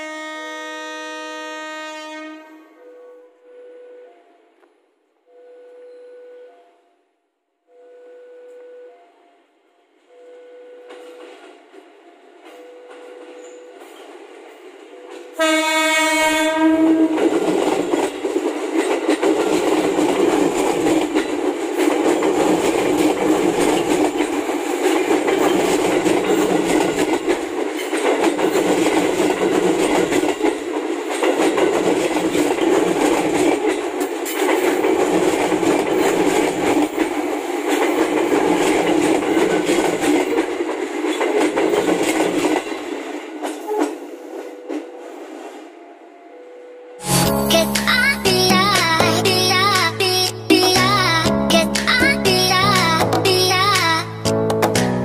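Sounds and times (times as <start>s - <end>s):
train horn blast: 0.0s - 4.4s, 15.3s - 17.2s
train wheels clattering on rail: 10.9s - 45.7s.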